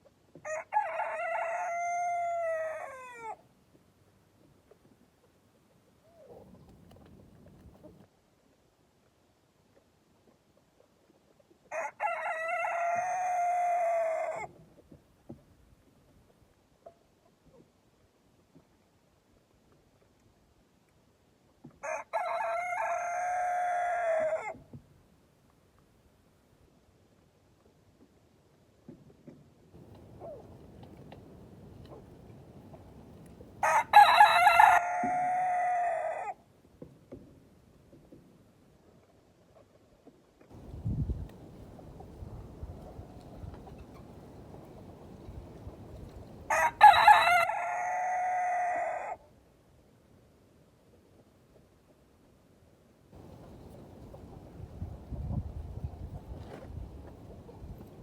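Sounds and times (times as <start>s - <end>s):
rooster crowing: 0.4s - 3.4s, 11.7s - 14.5s, 21.8s - 24.6s, 33.6s - 36.4s, 46.5s - 49.2s.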